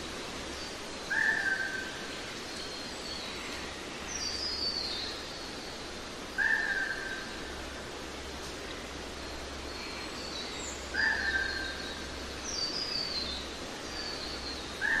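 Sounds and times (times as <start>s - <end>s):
nature ambience hiss: 0.0s - 15.0s.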